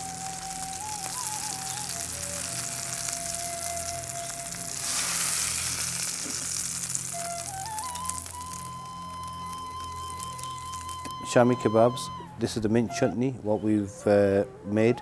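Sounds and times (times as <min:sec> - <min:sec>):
kebabs sizzling in oil: 0:00.0 - 0:11.2.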